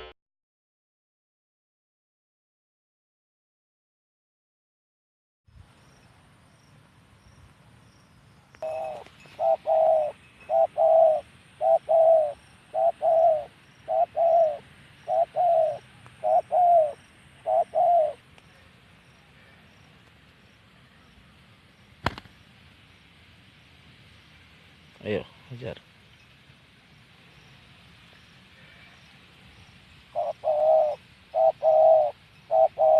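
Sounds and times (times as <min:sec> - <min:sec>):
dove cooing: 0:08.6 - 0:18.2, 0:30.1 - 0:32.9.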